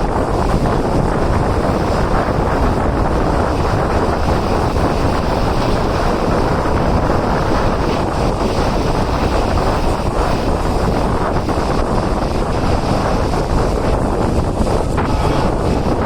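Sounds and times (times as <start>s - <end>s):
wind buffeting microphone: 0.0s - 16.0s
train rumbling: 14.6s - 16.0s.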